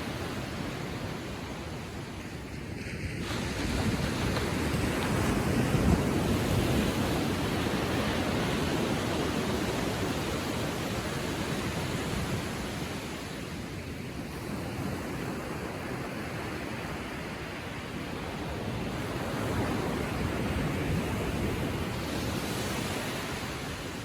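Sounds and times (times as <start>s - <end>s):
ocean waves lapping on shore: 0.0s - 24.0s.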